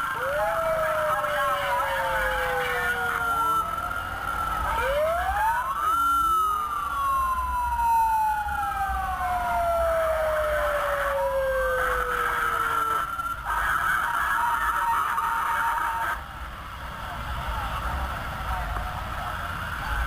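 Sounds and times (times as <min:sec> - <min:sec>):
low vehicle rumble: 0:00.0 - 0:15.4
steady high siren tone: 0:00.0 - 0:16.2
emergency sirens wailing: 0:00.0 - 0:20.0.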